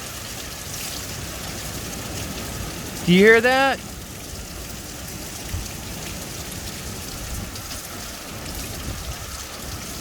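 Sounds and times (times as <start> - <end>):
heavy rain falling: 0.0 - 10.0
gusting wind rumbling: 6.6 - 10.0.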